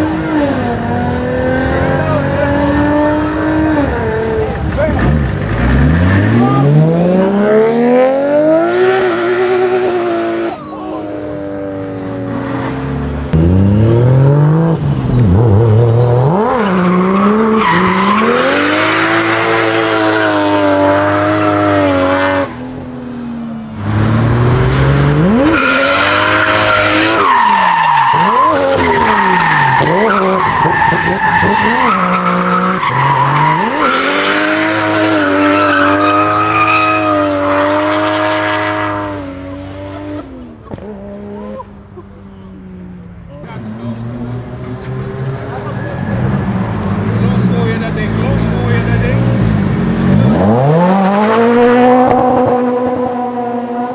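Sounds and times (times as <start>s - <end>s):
car engines revving hard: 0.0s - 53.9s
tyre squeal and skidding: 3.0s - 7.4s, 16.2s - 39.1s, 44.7s - 51.7s.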